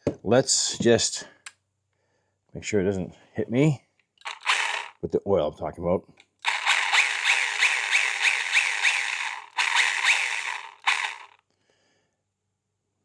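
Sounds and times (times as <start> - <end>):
mini chainsaw chain spinning: 4.2 - 5.0, 6.4 - 11.4.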